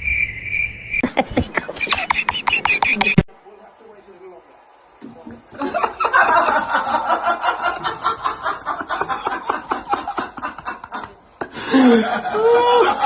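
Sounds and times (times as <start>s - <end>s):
hearty laughter: 1.0s - 3.3s, 5.5s - 13.0s.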